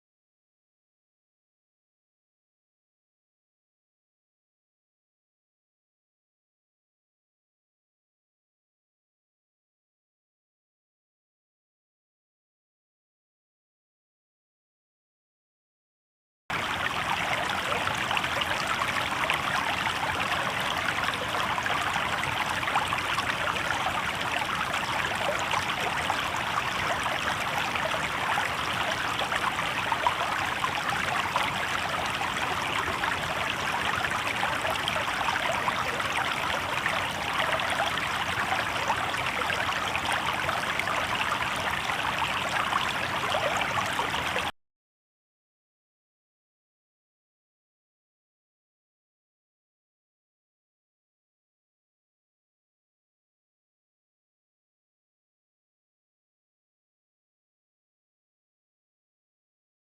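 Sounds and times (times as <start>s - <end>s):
river water babbling over stones: 16.6s - 44.5s.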